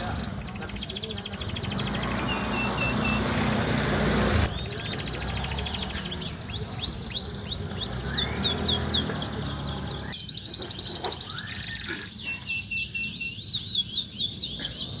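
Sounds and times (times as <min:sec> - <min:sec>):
canary singing: 0:00.0 - 0:15.0.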